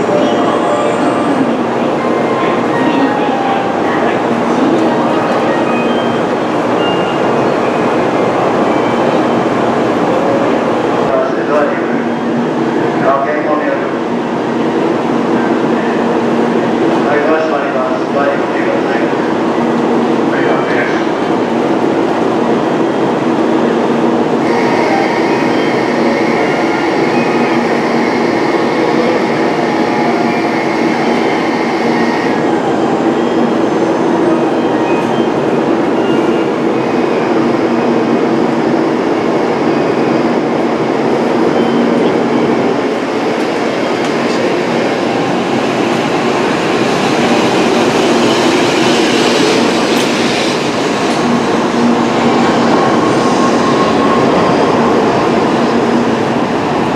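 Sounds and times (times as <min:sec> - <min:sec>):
train wheels rumbling: 0:24.3 - 0:56.9.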